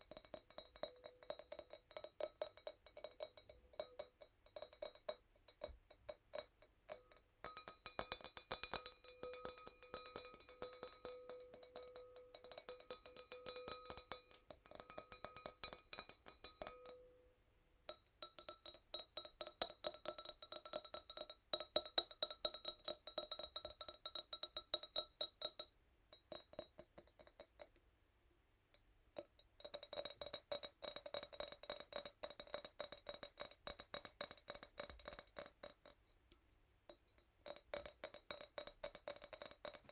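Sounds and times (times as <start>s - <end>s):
fingernails tapping wine glass: 0.0s - 17.2s.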